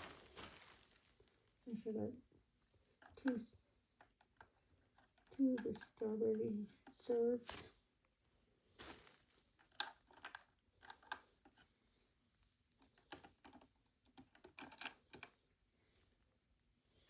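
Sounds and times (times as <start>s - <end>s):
small plastic items clicking: 9.6s - 11.3s.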